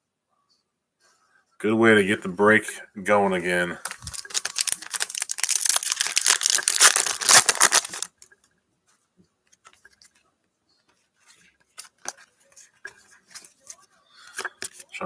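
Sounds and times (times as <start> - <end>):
card wrapper tearing and crinkling: 3.8 - 8.2.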